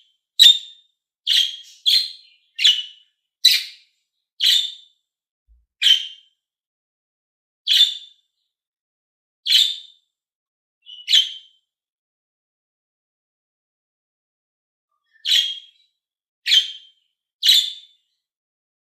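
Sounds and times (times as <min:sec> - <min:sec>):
budgerigar chirping: 0:00.4 - 0:03.8, 0:04.4 - 0:04.8, 0:05.8 - 0:06.2, 0:07.7 - 0:08.0, 0:09.5 - 0:09.8, 0:10.8 - 0:11.5, 0:15.2 - 0:15.8, 0:16.5 - 0:17.9.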